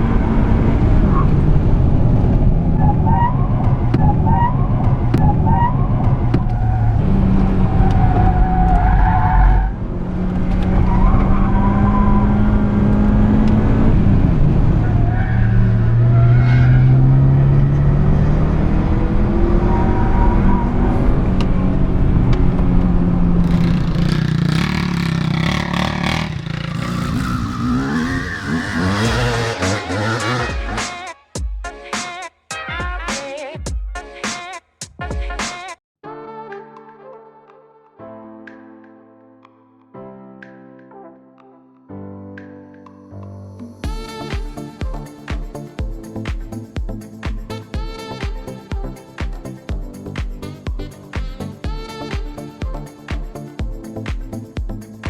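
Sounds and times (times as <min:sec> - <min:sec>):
car engine accelerating: 0:00.0 - 0:30.8.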